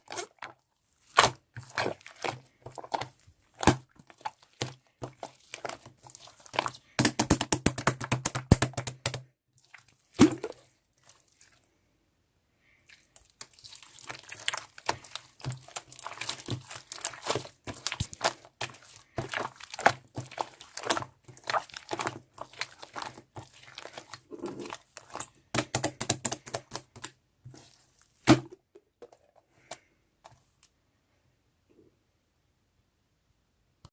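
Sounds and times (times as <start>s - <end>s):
crinkling handling noise: 0.0s - 7.0s, 12.6s - 30.7s.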